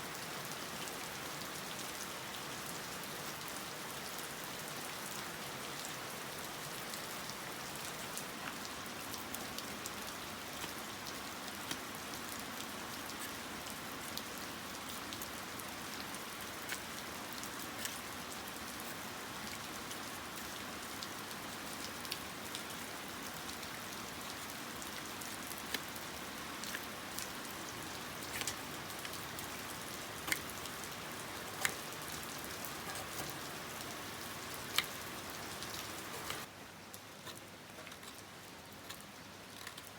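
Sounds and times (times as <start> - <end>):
light rain falling: 0.0 - 39.9
raindrops tapping: 25.5 - 36.5.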